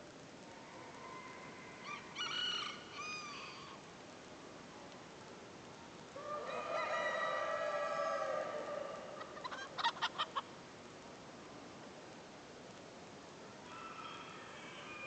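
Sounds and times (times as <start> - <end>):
rooster crowing: 1.1 - 3.8, 6.2 - 9.4, 13.6 - 15.0
chicken clucking: 9.1 - 10.4.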